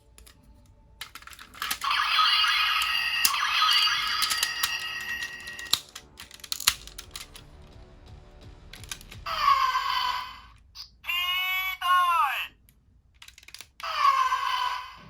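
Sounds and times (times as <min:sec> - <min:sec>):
plastic toy parts clicking: 0:00.0 - 0:07.5, 0:08.7 - 0:09.2, 0:12.6 - 0:14.1
pitched electronic toy sound: 0:01.6 - 0:05.8.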